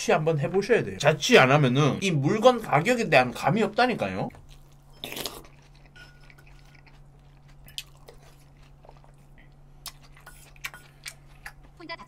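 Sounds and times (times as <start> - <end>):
person chewing food: 4.3 - 11.8.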